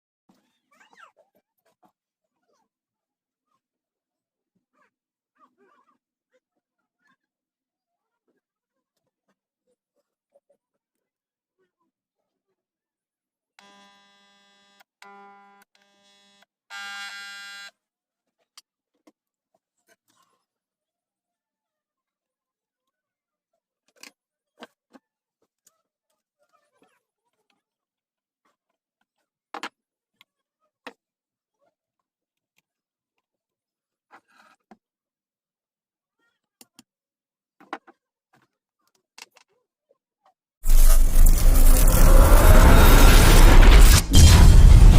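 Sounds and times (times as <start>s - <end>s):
electric buzzer buzzing: 16.7s - 17.7s.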